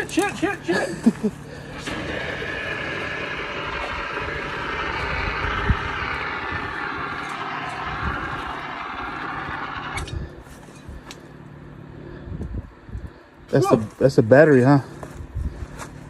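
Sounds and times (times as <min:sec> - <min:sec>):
fire extinguisher hissing: 0:01.6 - 0:10.2.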